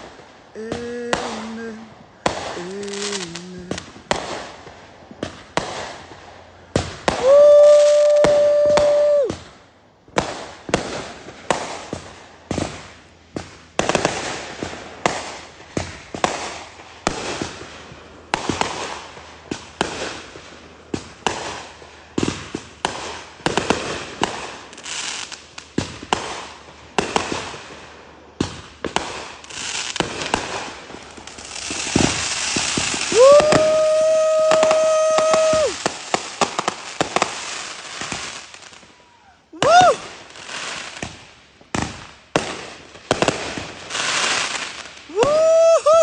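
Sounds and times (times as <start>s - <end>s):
firework sparks hissing: 0.0s - 9.5s, 10.2s - 46.0s
firework bangs: 0.0s - 46.0s
firework crackling: 0.0s - 46.0s
high firework whistle: 0.7s - 3.9s, 6.8s - 9.5s, 31.4s - 37.5s, 38.8s - 40.2s, 45.1s - 46.0s.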